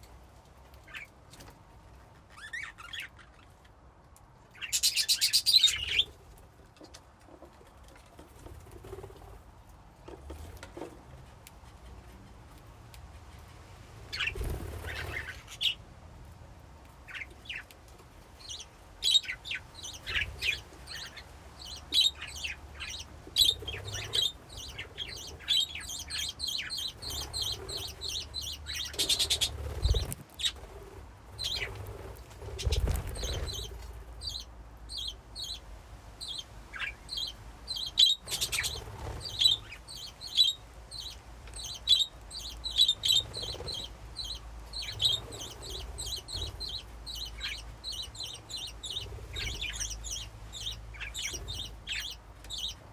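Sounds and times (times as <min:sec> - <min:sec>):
budgerigars chirping and warbling: 0:02.3 - 0:03.5, 0:04.6 - 0:06.1, 0:14.1 - 0:15.8, 0:18.4 - 0:35.6, 0:36.2 - 0:52.9
wing flutters and rustling: 0:05.8 - 0:15.7, 0:22.8 - 0:34.4, 0:38.2 - 0:39.8, 0:41.8 - 0:47.5.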